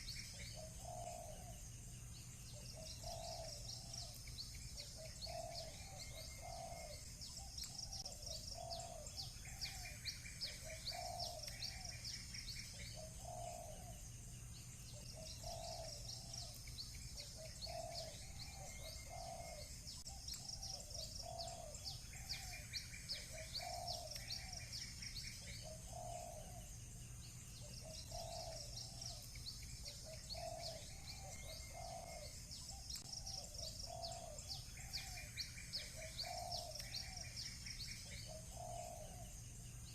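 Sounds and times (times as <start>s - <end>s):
doves cooing: 0.0s - 1.7s, 2.5s - 14.1s, 14.9s - 26.8s, 27.6s - 39.4s
bird trills: 0.0s - 39.9s
small birds chirping: 0.0s - 39.9s.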